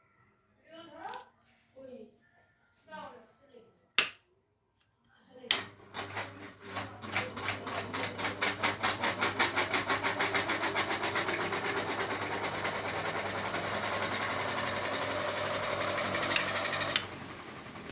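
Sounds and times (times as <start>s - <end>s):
fan switch click: 4.0s - 4.2s, 16.3s - 17.1s
ceiling fan clicking and whirring: 5.5s - 17.9s.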